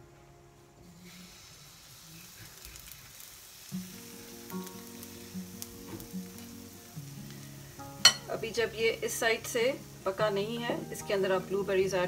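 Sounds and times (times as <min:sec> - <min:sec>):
soft background music: 0:00.0 - 0:01.9, 0:03.6 - 0:12.0
batter sizzling in oil: 0:01.0 - 0:12.0.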